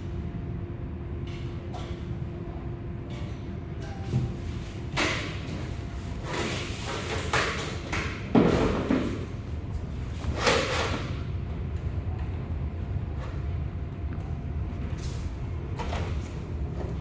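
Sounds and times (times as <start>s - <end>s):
microwave shelf sliding on runners: 9.0s - 11.3s.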